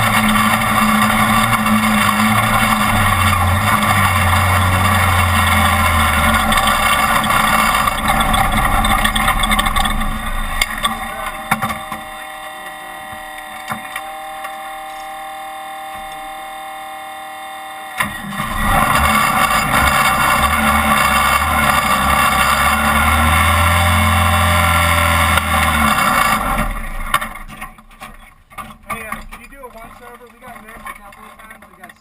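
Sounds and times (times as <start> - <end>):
road and wind noise: 0.0 - 14.3
truck engine from inside cab: 0.0 - 31.7.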